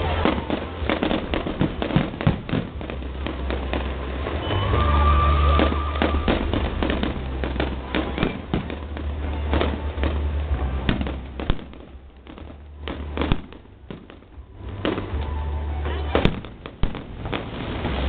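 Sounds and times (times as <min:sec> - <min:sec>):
firework whistle: 0:00.0 - 0:12.0, 0:12.8 - 0:18.0
fireworks bangs and crackles: 0:00.0 - 0:18.0
low rumble: 0:00.0 - 0:18.0.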